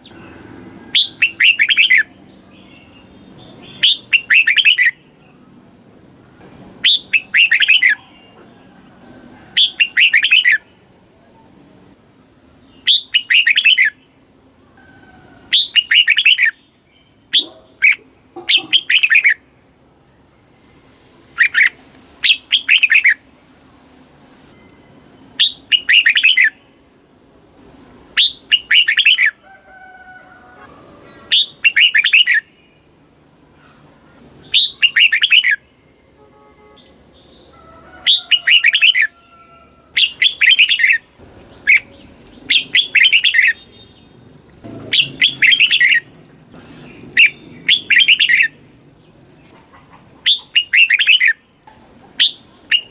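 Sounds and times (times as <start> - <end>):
bird singing warbling phrases: 0.0 - 5.6, 6.8 - 8.5, 9.6 - 11.6, 12.6 - 14.8, 15.5 - 19.5, 21.4 - 23.3, 24.6 - 26.8, 28.2 - 29.5, 31.0 - 32.9, 33.5 - 39.2, 39.9 - 52.9.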